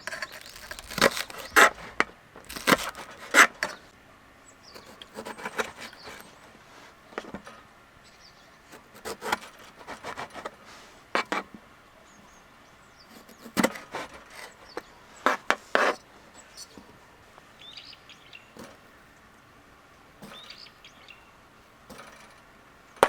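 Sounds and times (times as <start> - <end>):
objects scraping: 0.0 - 3.8, 13.2 - 16.0, 21.9 - 22.4.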